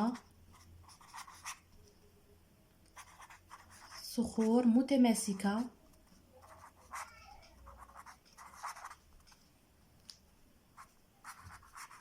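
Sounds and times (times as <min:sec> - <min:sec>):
pen scratching on paper: 0:00.1 - 0:01.6, 0:03.0 - 0:04.7, 0:05.4 - 0:09.0, 0:10.8 - 0:12.0.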